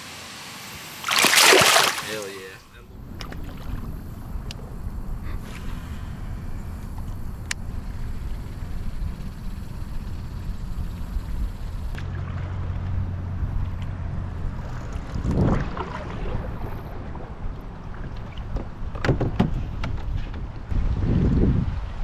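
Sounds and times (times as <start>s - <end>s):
wind rumbling on microphone: 14.4s - 22.0s.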